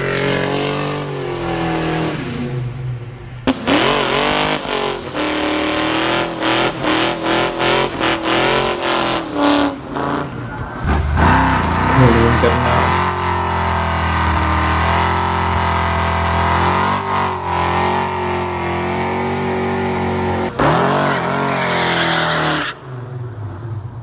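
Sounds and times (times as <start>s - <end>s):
car engine revving: 0.0s - 23.1s
deeper engine sound: 10.8s - 16.8s.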